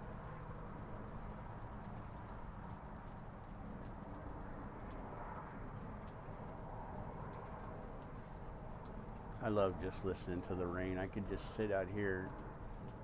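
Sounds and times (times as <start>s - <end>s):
rain falling: 0.0s - 13.0s
drips ticking: 6.0s - 13.0s
low steady hum: 9.2s - 13.0s.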